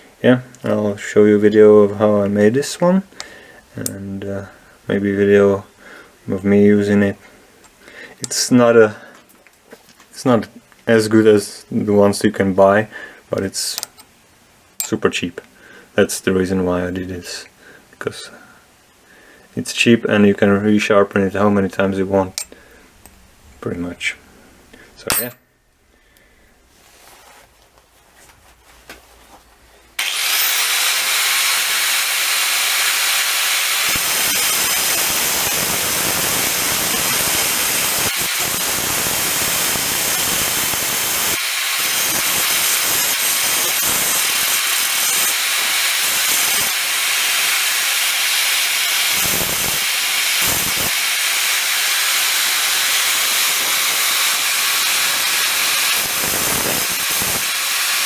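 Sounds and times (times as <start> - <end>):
grinder cutting steel: 30.0 - 58.0.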